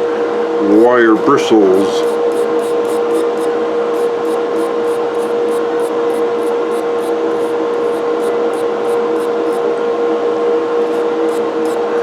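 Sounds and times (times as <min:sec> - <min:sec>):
wire brush whining: 0:01.8 - 0:09.8, 0:10.8 - 0:12.0
scratchy brush strokes on metal: 0:02.0 - 0:09.7, 0:10.8 - 0:12.0.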